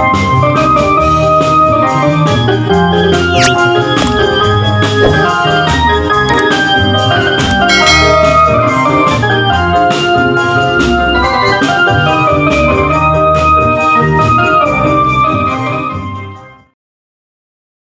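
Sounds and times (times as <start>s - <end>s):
electronic keyboard organ melody: 0.0s - 16.7s
bass line: 3.0s - 10.0s
drum strokes: 4.9s - 6.4s, 7.6s - 9.0s.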